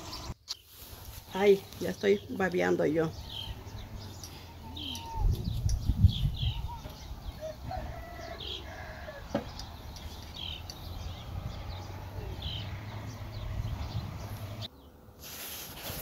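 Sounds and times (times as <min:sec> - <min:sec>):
bird chirping: 0:01.4 - 0:15.0.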